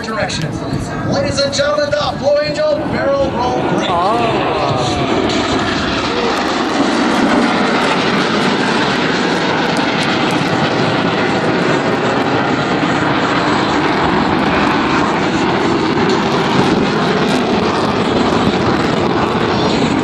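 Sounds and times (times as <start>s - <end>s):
jets roaring overhead: 0.0s - 20.0s.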